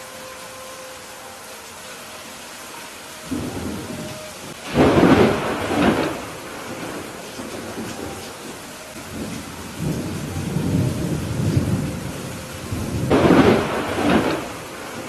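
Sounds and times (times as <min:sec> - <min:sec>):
rain hiss: 0:00.0 - 0:15.0
rolling thunder: 0:03.3 - 0:15.0.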